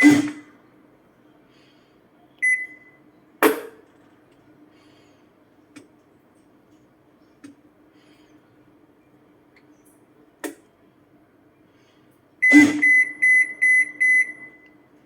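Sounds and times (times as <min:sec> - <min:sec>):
faint machine hum: 0:00.0 - 0:15.0.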